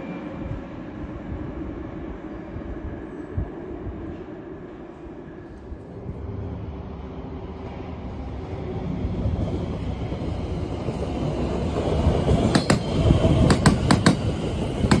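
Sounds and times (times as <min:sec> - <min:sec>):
electric train passing: 0:00.0 - 0:15.0
wheels clicking over rail joints: 0:11.7 - 0:15.0.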